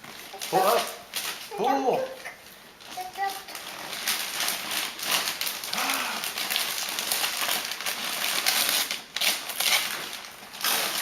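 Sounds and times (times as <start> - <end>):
wrapping paper crinkling: 0.0 - 11.0.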